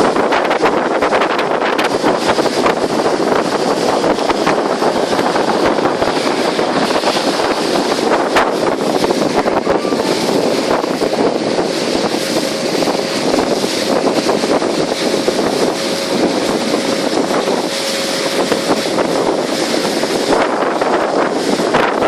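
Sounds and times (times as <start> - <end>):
motorboat running: 0.0 - 22.0
wind noise on microphone: 0.0 - 22.0.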